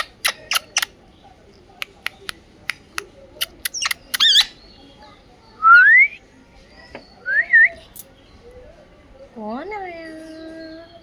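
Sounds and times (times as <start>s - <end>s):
parrot chirp: 0.0s - 0.9s, 3.4s - 4.7s
parrot whistling: 3.7s - 4.6s.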